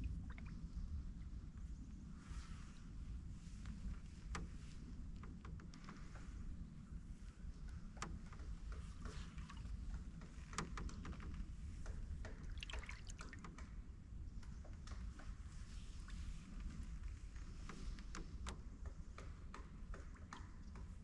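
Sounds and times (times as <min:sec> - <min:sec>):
low steady rumble: 0:00.0 - 0:10.4
paddle dripping and splashing water: 0:12.4 - 0:13.6.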